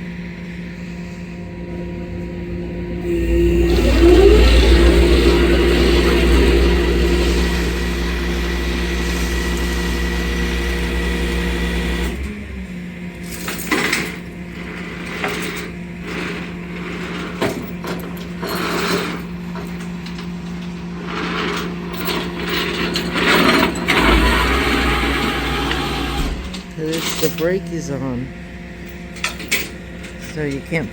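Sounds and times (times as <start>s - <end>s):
tow truck machinery hum: 0.0s - 30.9s
deep rumble: 1.0s - 12.1s.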